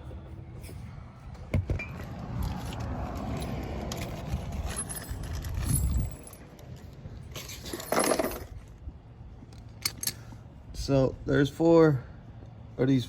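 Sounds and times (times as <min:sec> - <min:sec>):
small metal parts clinking: 0:03.0 - 0:08.7, 0:09.6 - 0:10.3.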